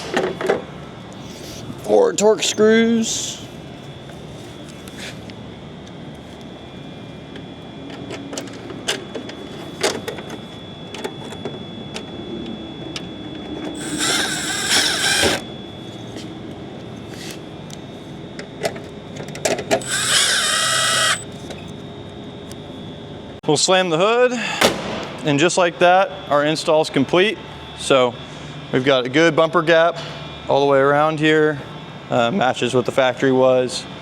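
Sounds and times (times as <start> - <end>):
cordless power driver whirring: 13.8 - 15.5, 19.8 - 21.3.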